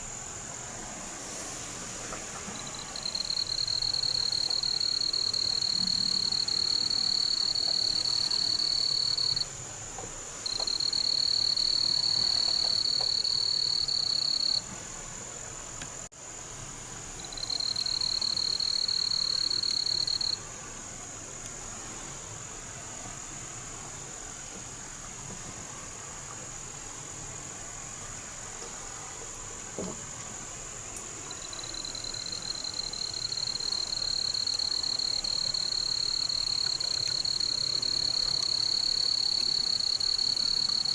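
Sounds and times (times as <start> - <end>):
high-pitched insect or frog trills: 2.6 - 9.5, 10.4 - 14.6, 17.2 - 20.4, 31.3 - 40.9.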